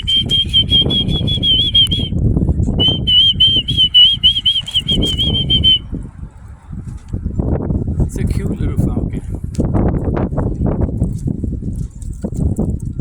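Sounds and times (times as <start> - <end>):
falcon calling: 0.0 - 2.1, 2.8 - 5.8
loud low rumbling: 0.0 - 11.6.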